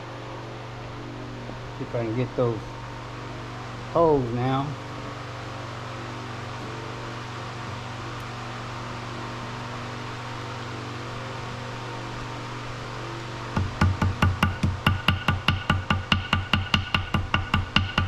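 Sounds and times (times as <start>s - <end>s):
low mechanical hum with hiss: 0.0s - 18.0s
rhythmic music with beats: 13.6s - 18.0s.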